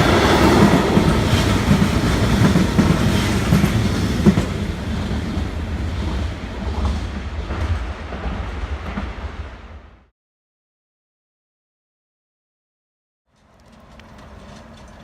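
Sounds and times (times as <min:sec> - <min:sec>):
train rumbling past: 0:00.0 - 0:10.1, 0:13.3 - 0:15.0.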